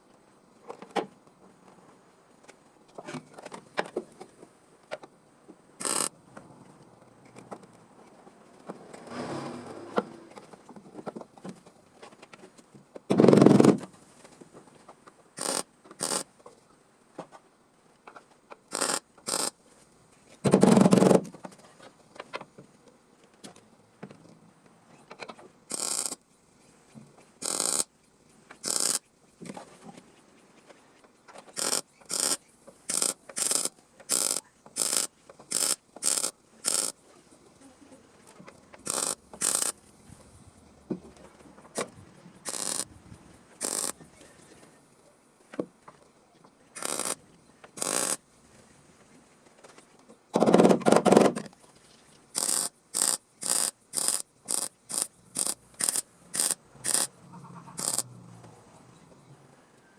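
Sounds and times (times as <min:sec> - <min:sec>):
welder crackling in bursts: 0:05.8 - 0:06.1, 0:15.4 - 0:16.3, 0:18.7 - 0:19.6, 0:25.7 - 0:26.2, 0:27.4 - 0:27.9, 0:28.6 - 0:29.1, 0:31.5 - 0:37.0, 0:38.8 - 0:39.8, 0:42.4 - 0:42.9, 0:43.6 - 0:44.0, 0:46.8 - 0:47.2, 0:47.8 - 0:48.2, 0:52.3 - 0:57.1, 0:57.8 - 0:58.1.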